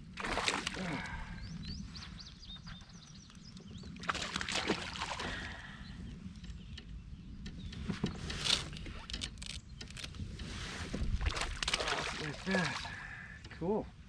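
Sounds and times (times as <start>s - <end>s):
water splashing and sloshing: 0.0s - 1.4s, 3.9s - 5.8s, 8.4s - 13.6s.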